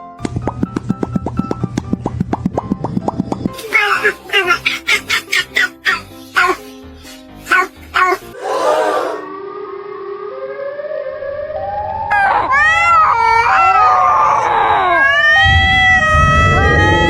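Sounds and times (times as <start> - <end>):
warning siren wailing: 15.2 - 17.0.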